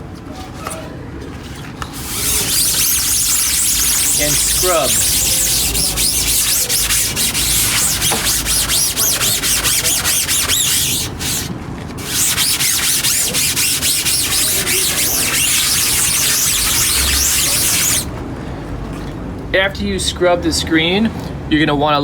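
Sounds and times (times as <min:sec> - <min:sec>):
sponge scrubbing mesh: 0:01.9 - 0:18.1.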